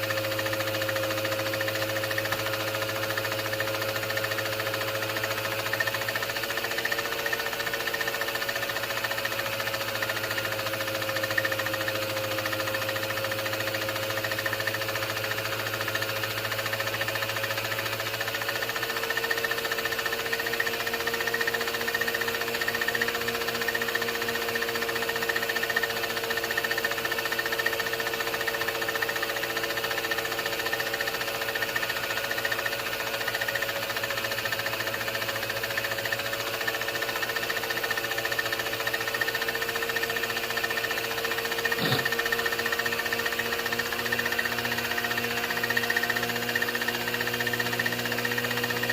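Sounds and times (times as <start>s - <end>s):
film projector clattering: 0.0s - 48.9s
projector hum: 41.8s - 42.2s.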